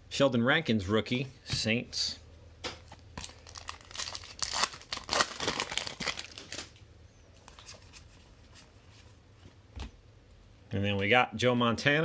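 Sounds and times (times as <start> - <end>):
plastic wrapper crinkling and tearing: 3.2 - 6.8.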